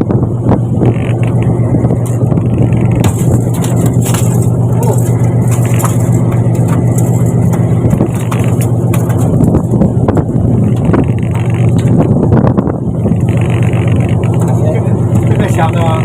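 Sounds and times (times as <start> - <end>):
boat engine humming: 0.0 - 16.0
knocks and clatter: 2.0 - 12.2.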